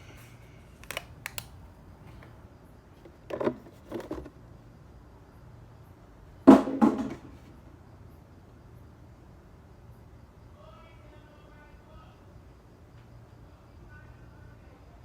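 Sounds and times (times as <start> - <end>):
plastic bottle clicks: 0.8 - 1.6
plastic bottle knocks: 6.5 - 7.3.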